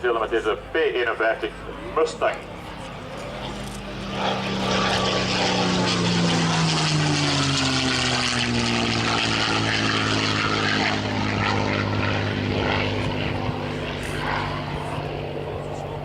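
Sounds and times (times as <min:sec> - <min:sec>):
propeller plane engine flypast: 0:00.0 - 0:16.0.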